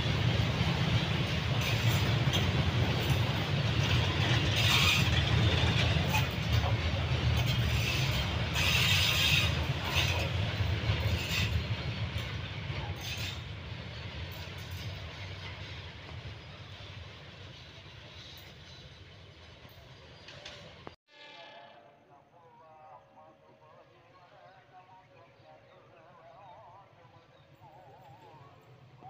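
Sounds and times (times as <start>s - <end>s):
train wheels rumbling on track: 0.0s - 21.0s.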